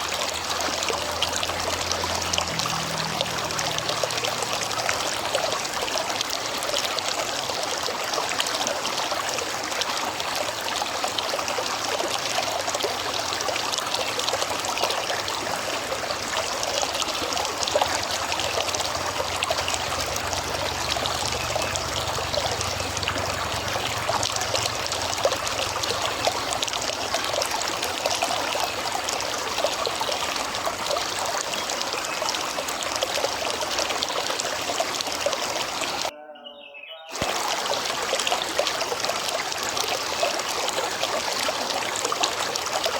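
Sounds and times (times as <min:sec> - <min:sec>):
river water flowing: 0:00.0 - 0:36.1, 0:37.1 - 0:42.9.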